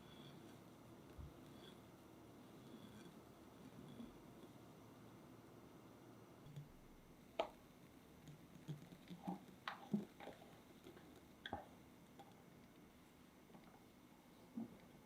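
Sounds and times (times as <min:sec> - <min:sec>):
soft kitchen clicks and taps: 0:07.4 - 0:12.8.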